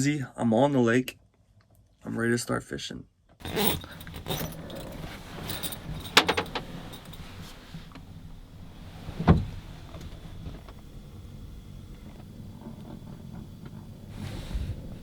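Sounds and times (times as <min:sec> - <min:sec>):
rustling and clinking gear: 0:03.4 - 0:15.0.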